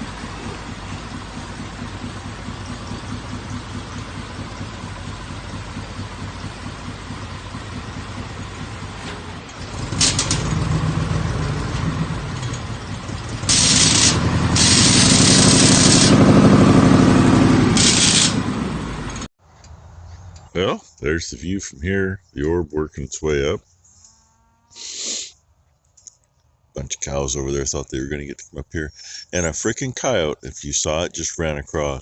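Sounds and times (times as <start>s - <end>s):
vehicle engine running: 0.0s - 19.3s, 26.8s - 32.0s
hissing noise: 13.5s - 16.2s, 17.8s - 18.4s, 24.8s - 25.4s.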